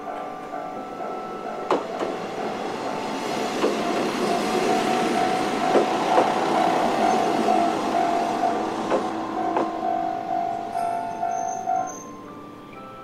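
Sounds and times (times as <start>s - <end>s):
diesel railcar passing: 0.0s - 13.0s
level crossing bell ringing: 0.0s - 13.0s
wheel clacks at rail joints: 1.5s - 10.0s.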